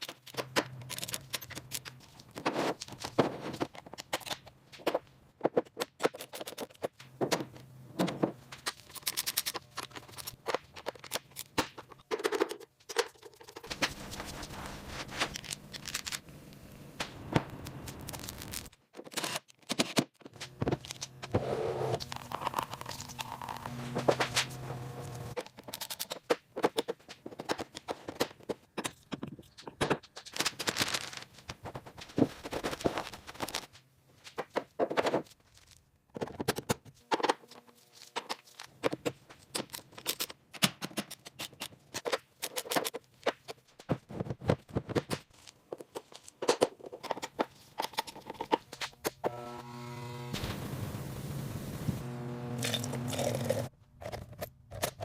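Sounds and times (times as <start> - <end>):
hands working on metal parts: 0.0 - 16.3, 36.1 - 49.6, 52.6 - 55.0.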